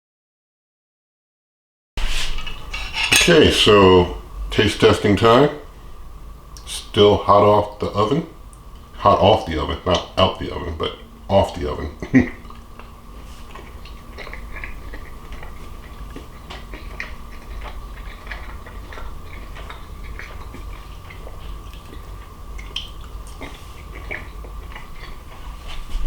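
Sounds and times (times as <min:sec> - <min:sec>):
person chewing: 0:08.6 - 0:26.0
small mouth clicks: 0:16.2 - 0:25.2.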